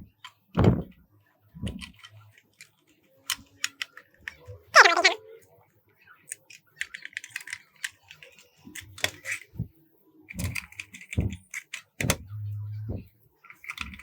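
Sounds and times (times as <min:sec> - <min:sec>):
clicks and knocks of small parts: 0:01.8 - 0:04.4, 0:06.3 - 0:09.5, 0:10.3 - 0:12.2, 0:13.5 - 0:14.0.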